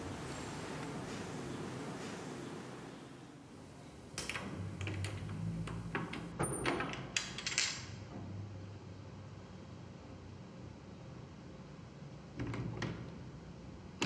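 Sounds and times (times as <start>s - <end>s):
door lock clicking and rattling: 4.2s - 8.0s.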